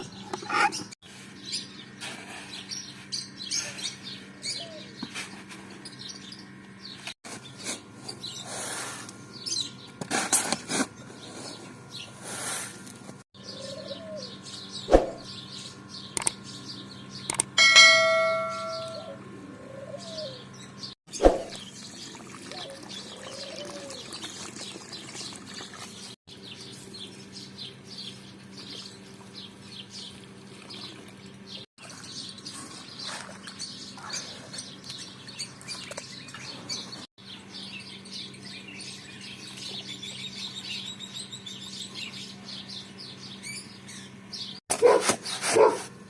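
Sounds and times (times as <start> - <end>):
birds chirping: 13.4 - 45.8
ringing tone: 17.6 - 19.2.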